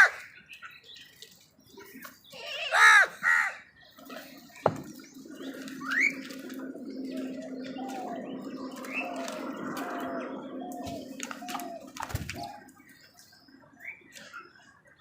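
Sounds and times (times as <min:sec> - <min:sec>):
small birds chirping: 0:00.0 - 0:15.0
crow cawing: 0:02.7 - 0:03.6
steady low hum: 0:03.9 - 0:13.8.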